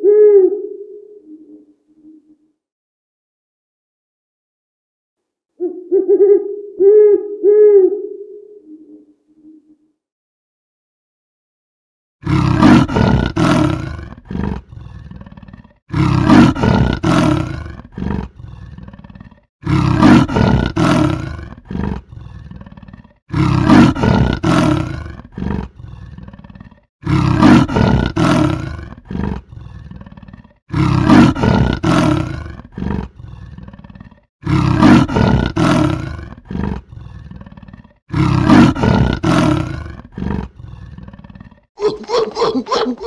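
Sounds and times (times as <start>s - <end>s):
large farm animal calling: 41.8s - 43.0s.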